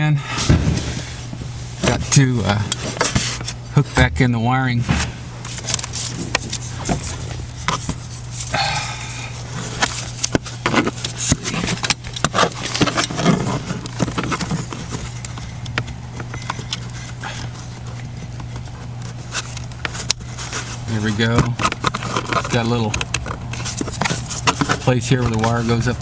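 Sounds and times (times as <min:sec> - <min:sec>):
plastic and wire clicks and rustles: 0:05.4 - 0:08.6, 0:09.2 - 0:26.0.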